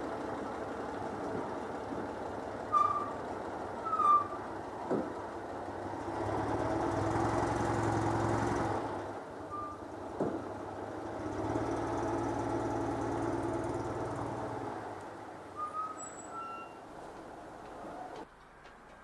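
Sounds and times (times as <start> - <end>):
flat-twin car engine running: 0.0 - 19.0
quick falling squeaks: 2.7 - 3.2, 3.8 - 4.4, 15.6 - 16.8.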